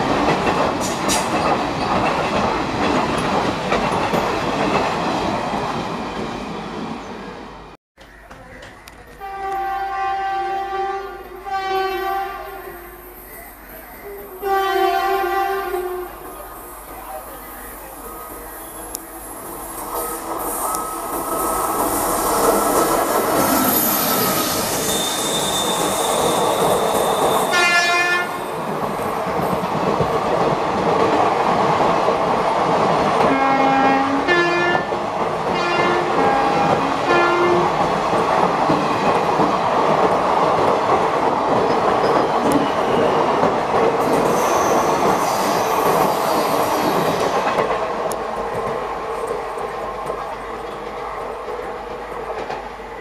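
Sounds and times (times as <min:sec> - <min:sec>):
train wheels clattering on rails: 0:00.0 - 0:06.5, 0:19.8 - 0:52.8
train horn toots: 0:09.1 - 0:13.1, 0:14.4 - 0:16.2, 0:27.2 - 0:28.5, 0:33.3 - 0:34.9, 0:35.5 - 0:37.7
high squeal: 0:17.4 - 0:28.6, 0:44.0 - 0:47.4.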